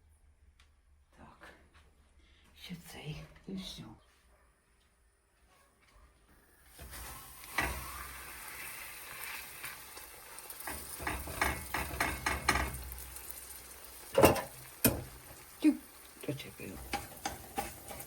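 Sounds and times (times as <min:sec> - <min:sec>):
food sizzling in a frying pan: 0:06.7 - 0:18.0.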